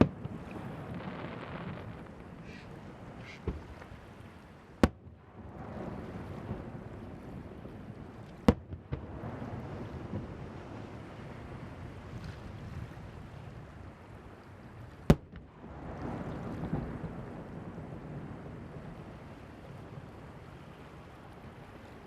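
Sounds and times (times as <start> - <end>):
fireworks bangs: 0.0 - 3.9, 8.4 - 10.4
surf: 0.0 - 22.0
wind on microphone: 0.0 - 22.0.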